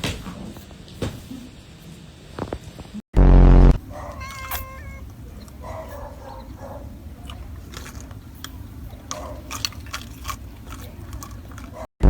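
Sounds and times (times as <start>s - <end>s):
loud low burst: 3.2s - 3.8s
cat meowing: 4.0s - 5.1s.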